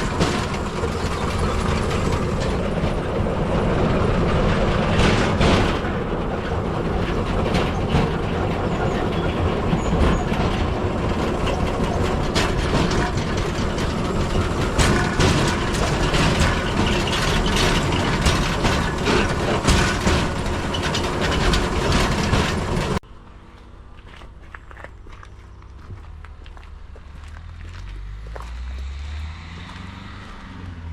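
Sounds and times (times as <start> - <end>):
clicks and knocks: 0.0 - 23.0
steel wheels clattering on track: 0.0 - 23.0.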